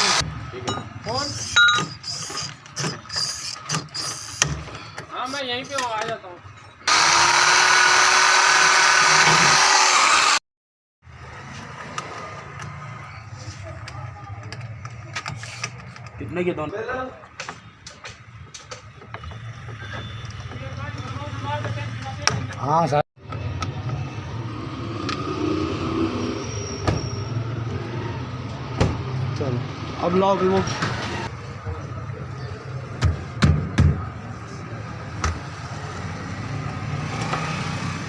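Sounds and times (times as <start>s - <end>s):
electric power tool running: 0.0s - 0.2s, 6.9s - 10.4s
workshop noise: 0.0s - 10.4s, 11.0s - 38.0s.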